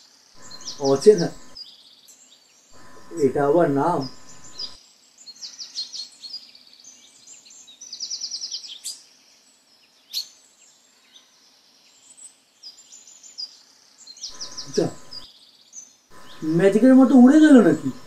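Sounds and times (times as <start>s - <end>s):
faint outdoor hiss: 0.0s - 18.0s
small birds chirping: 0.0s - 18.0s
fast bird trill: 0.4s - 1.6s, 2.8s - 4.8s, 14.3s - 15.2s, 16.2s - 18.0s.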